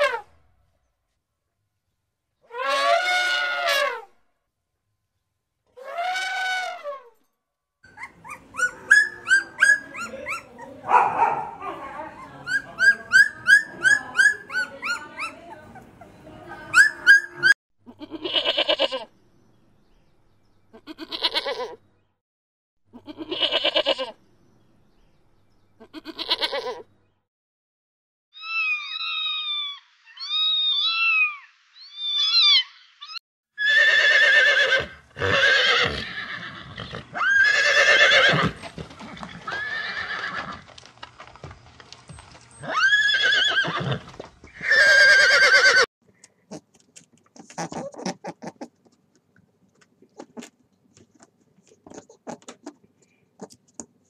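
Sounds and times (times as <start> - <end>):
puppy whimpering and yipping: 7.9 - 10.8, 12.1 - 17.6
sheep bleating: 17.9 - 19.1, 23.0 - 24.1, 25.8 - 26.8.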